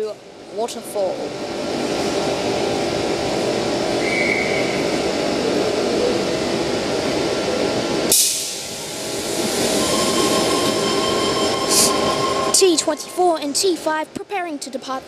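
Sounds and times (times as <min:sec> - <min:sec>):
electric train equipment hum: 0:00.0 - 0:15.0
sharp hiss of air: 0:08.1 - 0:09.7
steady high tone: 0:08.7 - 0:14.2.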